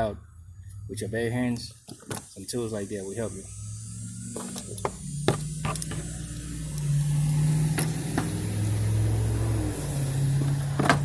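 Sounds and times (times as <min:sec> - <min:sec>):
vehicle engine running: 0:02.4 - 0:11.0
parts clicking when handled: 0:04.4 - 0:08.4.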